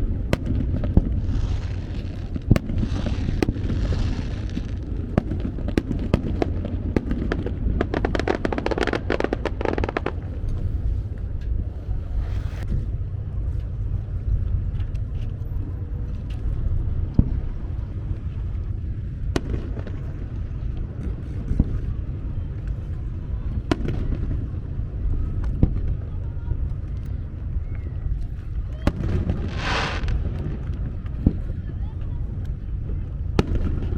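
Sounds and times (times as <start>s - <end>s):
firework bangs: 0.0s - 12.8s, 19.0s - 22.1s, 28.7s - 31.6s, 33.3s - 33.9s
fireworks crackling and popping: 0.0s - 13.0s, 16.2s - 33.9s
low rumble: 0.0s - 33.9s
firework hiss: 0.4s - 6.6s, 11.8s - 12.7s, 28.9s - 30.4s.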